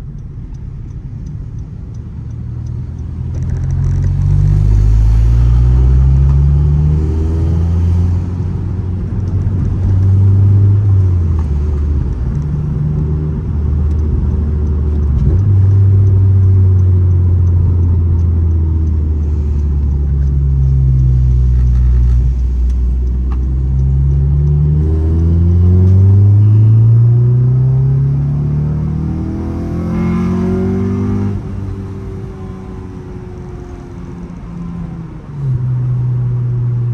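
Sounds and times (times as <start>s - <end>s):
deep car exhaust note: 18.5s - 32.7s.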